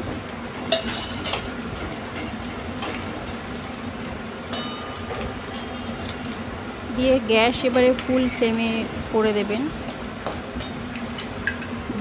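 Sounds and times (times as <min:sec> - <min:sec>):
food sizzling in oil: 0:00.0 - 0:12.0
metal spatula scraping a pan: 0:00.7 - 0:01.4.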